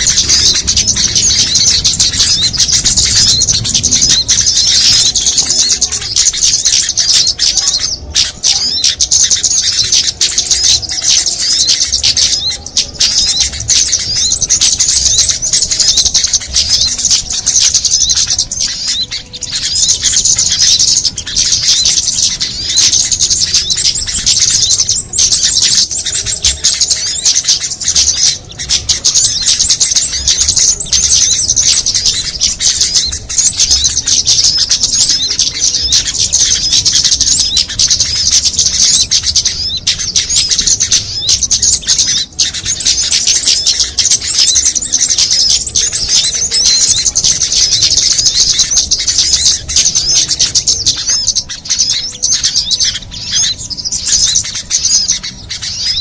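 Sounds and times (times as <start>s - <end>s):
songbirds chirping and twittering: 0.0s - 56.0s.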